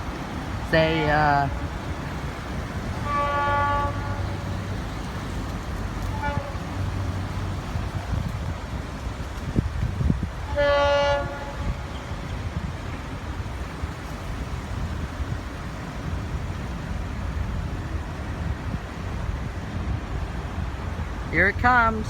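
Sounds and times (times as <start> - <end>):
locomotive horn blast: 2.9 - 4.7, 6.0 - 7.1, 10.5 - 12.0.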